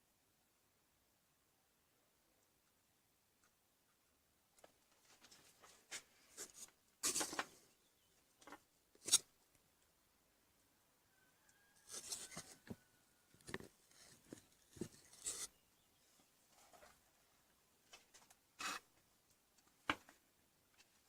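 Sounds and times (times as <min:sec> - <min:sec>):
hands handling tools and parts: 0:04.6 - 0:07.6, 0:08.4 - 0:09.3, 0:11.8 - 0:15.6
scrapes: 0:05.0 - 0:07.6, 0:09.0 - 0:09.3, 0:11.8 - 0:12.8, 0:13.5 - 0:15.6.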